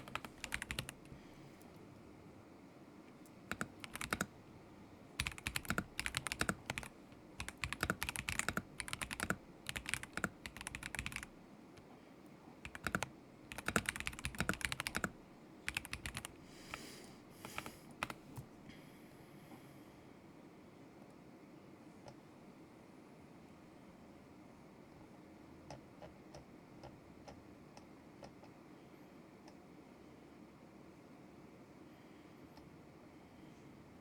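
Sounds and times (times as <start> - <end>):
mechanical keyboard typing: 0.0 - 1.2, 3.5 - 4.3, 5.2 - 11.3, 12.6 - 16.8, 17.4 - 18.5.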